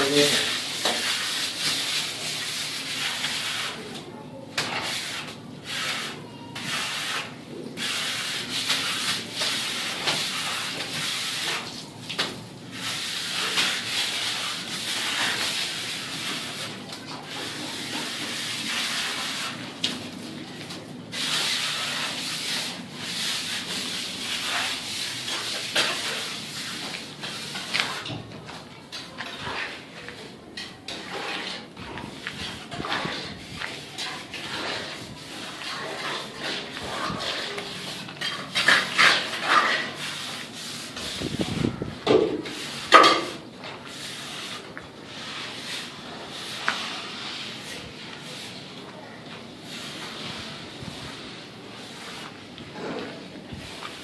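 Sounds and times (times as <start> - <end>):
rough scraping noise: 29.0 - 48.8, 49.6 - 54.0.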